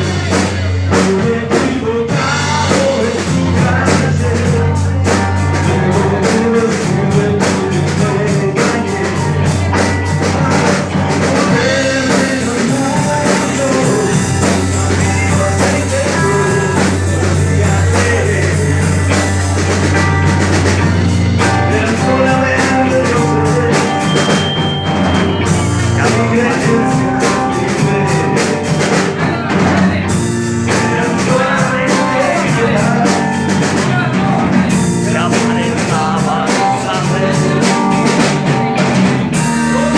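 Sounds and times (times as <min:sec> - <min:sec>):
rhythm and blues band playing: 0:00.0 - 0:39.9.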